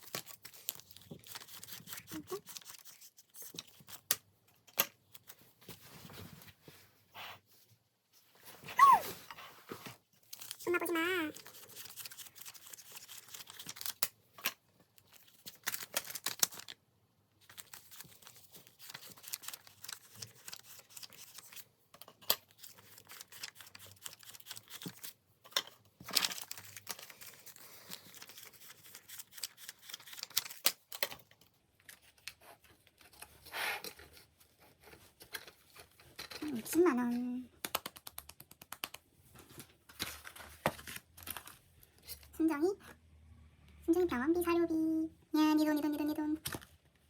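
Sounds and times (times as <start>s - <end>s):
paper rustling and crinkling: 0.0s - 4.1s, 8.2s - 16.8s, 17.4s - 37.2s, 39.2s - 42.3s.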